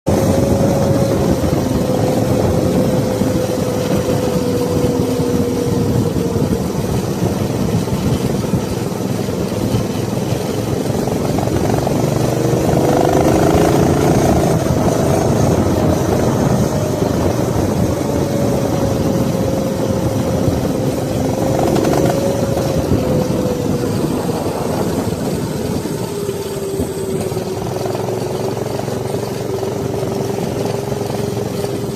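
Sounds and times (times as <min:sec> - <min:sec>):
small bike engine running: 0:00.1 - 0:31.9
wind rushing: 0:00.1 - 0:31.9.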